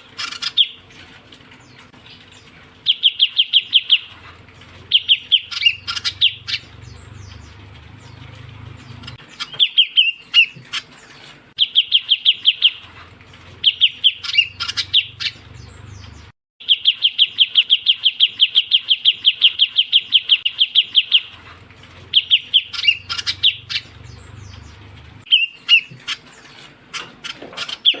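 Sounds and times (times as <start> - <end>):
high bird chirps: 0.1 - 0.8, 1.6 - 4.2, 4.8 - 12.9, 13.6 - 21.4, 22.1 - 28.0
bird call repeated notes: 16.6 - 21.3, 25.2 - 26.2.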